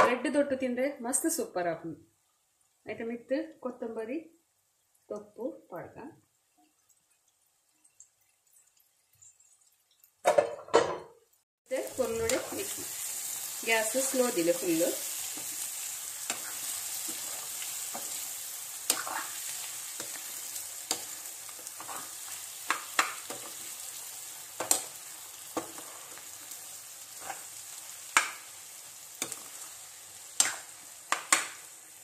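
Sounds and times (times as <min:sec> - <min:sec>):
food sizzling in a frying pan: 0:02.1 - 0:10.4, 0:11.6 - 0:32.0
spatula scraping and knocking pan: 0:14.0 - 0:18.3, 0:18.9 - 0:23.8, 0:24.5 - 0:26.4, 0:27.1 - 0:28.4.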